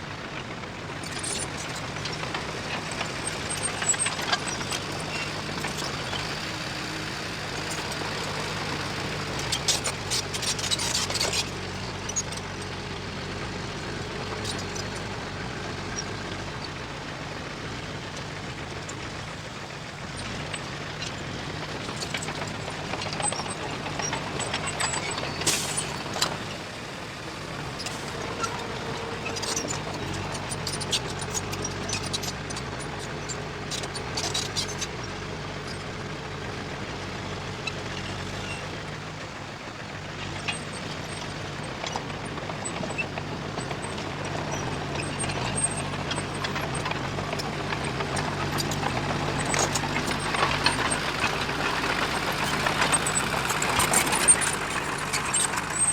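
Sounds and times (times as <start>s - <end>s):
heavy diesel engine running: 0.0s - 55.9s
machine clanking and rattling: 40.2s - 55.9s.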